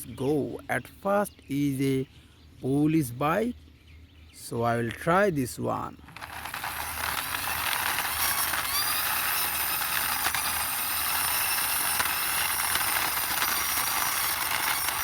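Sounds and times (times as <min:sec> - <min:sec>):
toy wheels and gears whirring: 0:06.0 - 0:15.0.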